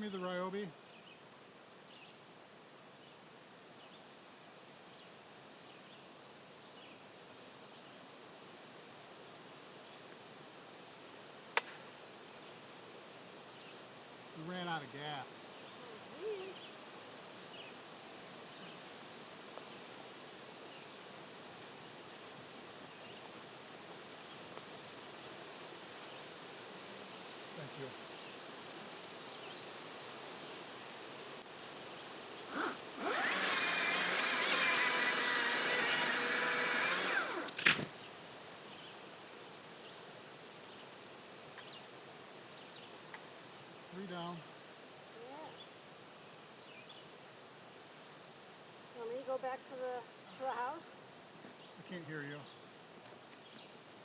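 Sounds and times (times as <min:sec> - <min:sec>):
faint steady hiss: 0:00.0 - 0:54.0
faint bird chirps: 0:15.4 - 0:16.8
chainsaw running: 0:32.5 - 0:37.9.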